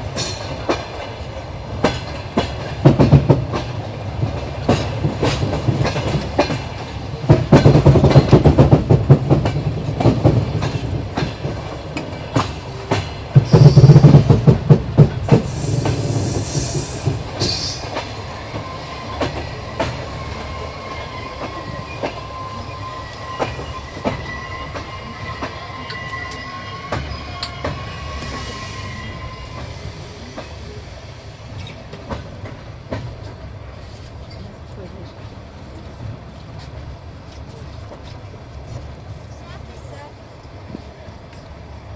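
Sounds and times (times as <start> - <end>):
thin squeal from train wheels: 0.0 - 0.8, 13.3 - 14.4, 15.3 - 32.6
train wheels clattering over rail joints: 0.1 - 22.2.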